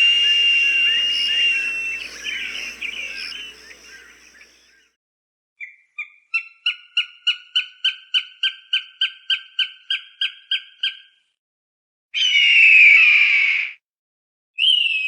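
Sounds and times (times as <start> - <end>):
hawk calling short sharp notes: 0.0 - 4.6.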